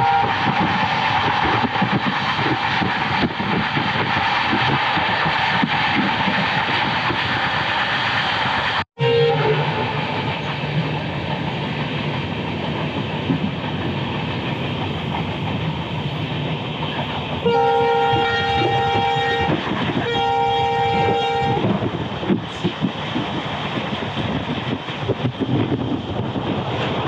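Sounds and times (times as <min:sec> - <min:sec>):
locomotive horn blasts: 0:00.0 - 0:00.4, 0:09.0 - 0:10.1, 0:17.4 - 0:21.7
train rushing rumble: 0:00.0 - 0:27.0.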